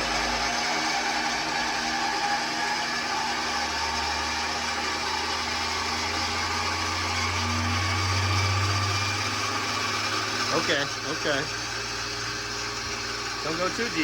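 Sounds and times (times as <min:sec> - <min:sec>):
low hum: 0:00.0 - 0:10.0
wood lathe whirring: 0:00.0 - 0:14.0.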